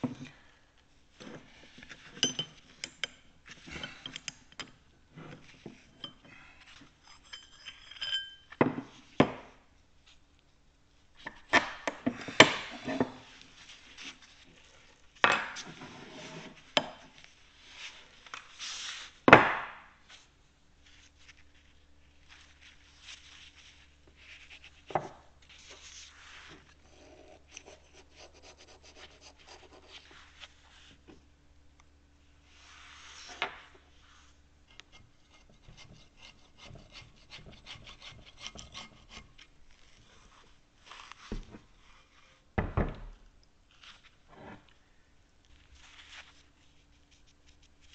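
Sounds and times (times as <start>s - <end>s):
metal parts knocking and clinking: 2.1s - 3.2s
light rubbing and scraping: 12.1s - 19.2s, 20.1s - 31.2s, 32.4s - 42.5s, 43.7s - 44.8s.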